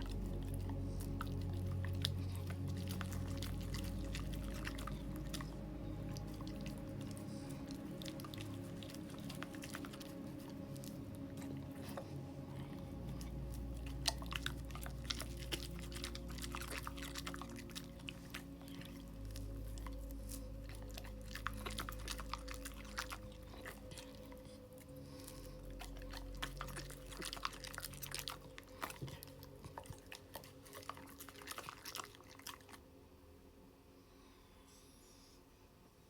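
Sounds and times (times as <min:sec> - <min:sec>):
dog chewing: 0:00.0 - 0:32.8
soft background music: 0:00.0 - 0:35.7.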